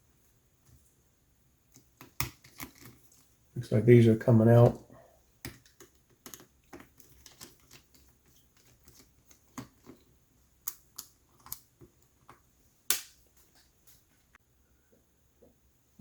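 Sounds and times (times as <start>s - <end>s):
screwdriver clicking on small screws: 5.4s - 10.0s.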